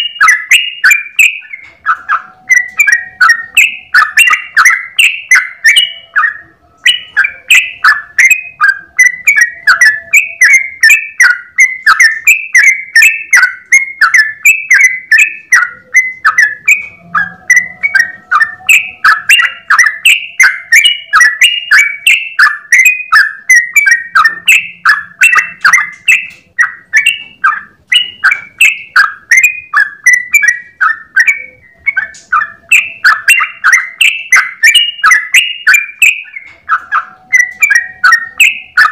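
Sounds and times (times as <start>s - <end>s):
bulbul singing rapid notes: 0.0s - 38.9s.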